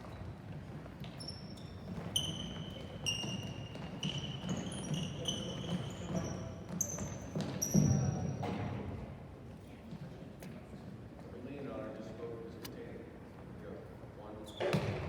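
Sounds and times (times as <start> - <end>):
shoes squeaking on court floor: 0.0 - 8.8, 14.4 - 15.0.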